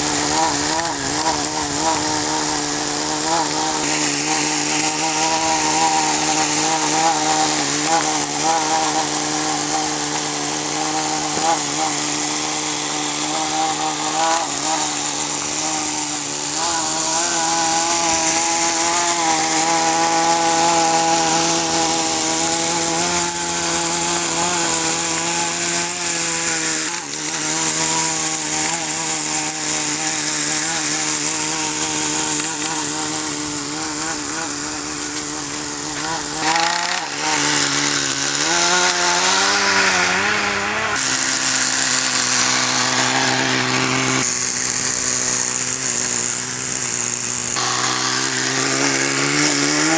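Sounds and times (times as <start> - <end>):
small nitro engine running: 0.0 - 49.9.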